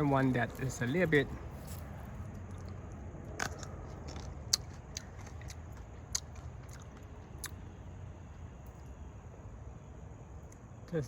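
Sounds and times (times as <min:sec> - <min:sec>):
low background rumble: 0:00.0 - 0:11.0
fruit chewing clicks: 0:02.3 - 0:09.0.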